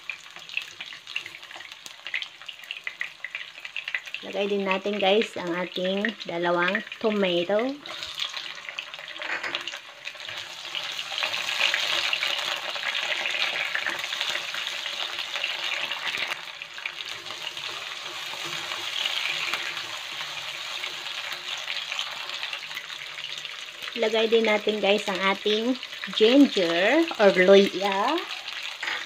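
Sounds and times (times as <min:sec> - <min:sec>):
vegetables sizzling in oil: 0:00.0 - 0:29.0
turner stirring in wok: 0:07.8 - 0:23.8.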